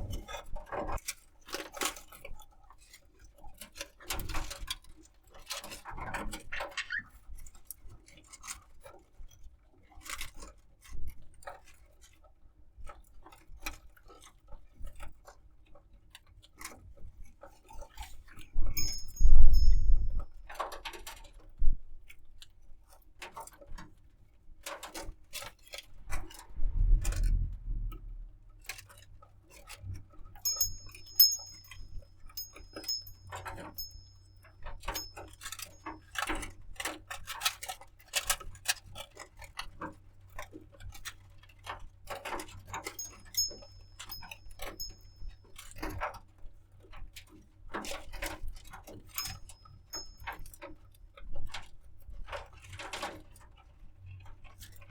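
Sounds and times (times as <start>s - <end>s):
budgerigar chirping: 6.5s - 7.1s
low thud: 26.3s - 28.8s.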